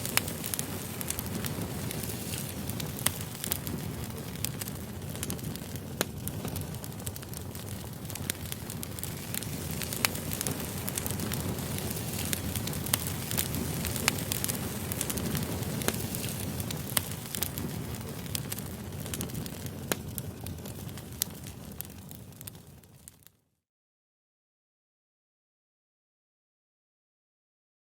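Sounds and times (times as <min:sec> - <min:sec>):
low rush of flame: 0:00.0 - 0:23.3
wood crackling and popping: 0:00.0 - 0:23.3.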